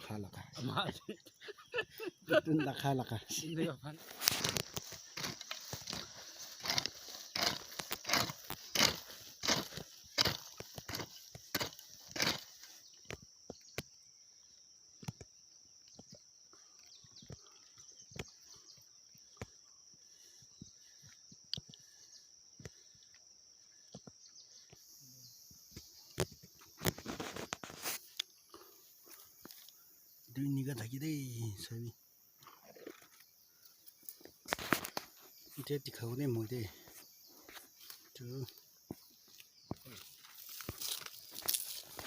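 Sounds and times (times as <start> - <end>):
digging knocks and scrapes in soil: 4.0 - 14.0, 25.9 - 28.4, 34.2 - 35.6, 36.8 - 42.0.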